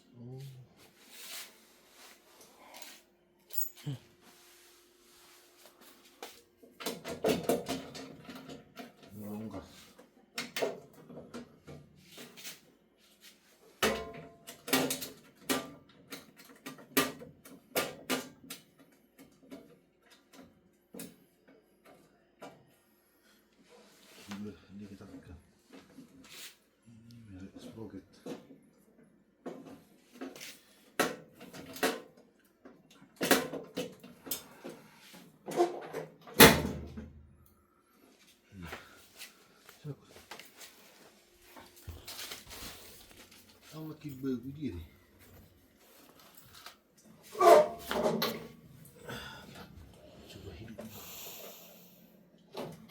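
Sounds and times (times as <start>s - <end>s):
soft rustling: 38.9s - 44.0s
hard parts knocking and clattering: 47.4s - 48.6s.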